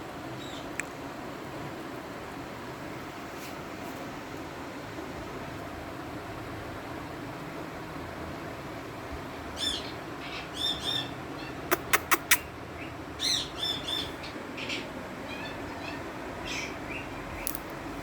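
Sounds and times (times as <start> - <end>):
parakeet chirping calls: 0.4 - 0.7, 9.3 - 17.6.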